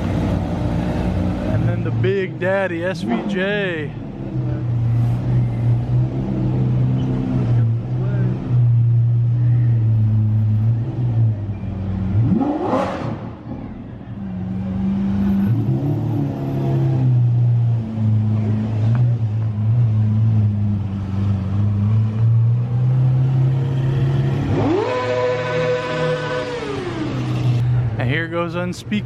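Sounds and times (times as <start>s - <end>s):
sports car engine revving: 9.9s - 13.7s, 14.3s - 27.6s.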